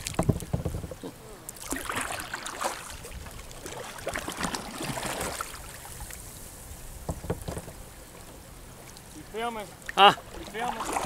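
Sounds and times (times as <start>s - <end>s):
short knocks: 0.0s - 1.2s, 7.0s - 7.8s
kayak paddle dipping in water: 0.0s - 11.0s
water splashes: 0.0s - 11.0s.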